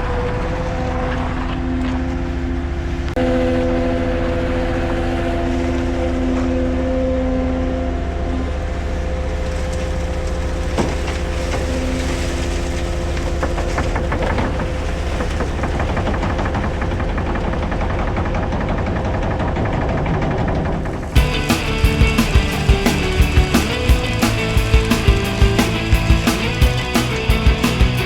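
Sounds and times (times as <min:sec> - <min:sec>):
heavy vehicle engine droning: 0:00.0 - 0:28.0
knocks and clatter: 0:09.5 - 0:28.0.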